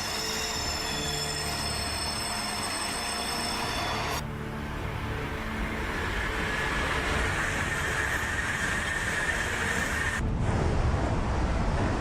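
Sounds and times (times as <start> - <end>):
high-speed train rushing with whine: 0.0 - 12.0
train deep rumble: 3.8 - 12.0.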